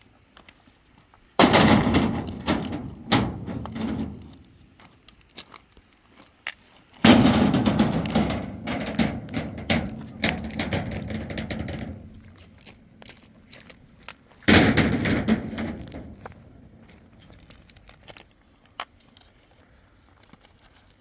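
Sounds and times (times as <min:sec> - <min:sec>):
stones tumbling and clattering: 0:01.4 - 0:05.5, 0:07.0 - 0:18.3.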